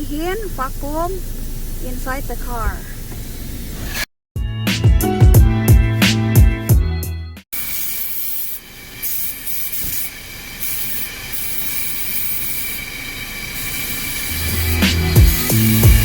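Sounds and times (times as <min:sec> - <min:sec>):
vacuum hose air rushing: 0:00.0 - 0:04.1, 0:07.6 - 0:16.0.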